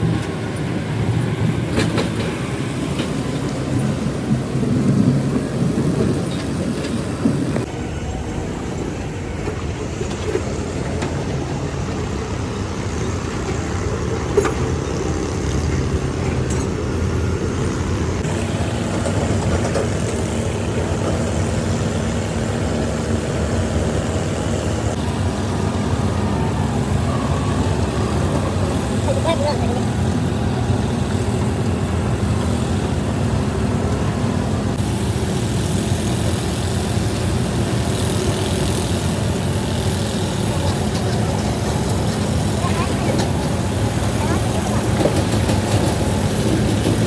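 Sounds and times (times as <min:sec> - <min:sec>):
heavy vehicle engine running: 0:00.0 - 0:47.0.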